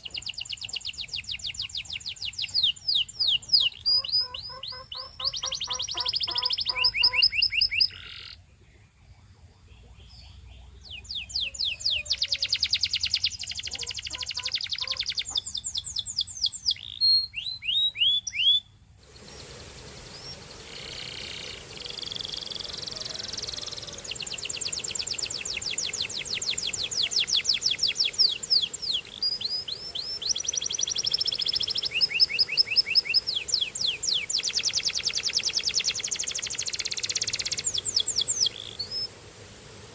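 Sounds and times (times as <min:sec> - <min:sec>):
canary singing: 0:00.0 - 0:08.4, 0:09.8 - 0:18.7, 0:19.3 - 0:39.2
steady hiss: 0:18.8 - 0:39.9.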